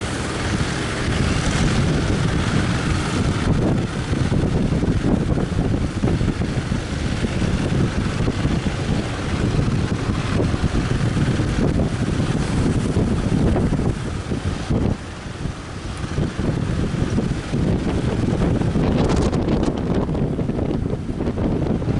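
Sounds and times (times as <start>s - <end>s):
surf hissing: 0.0s - 21.9s
wind buffeting microphone: 0.0s - 21.9s.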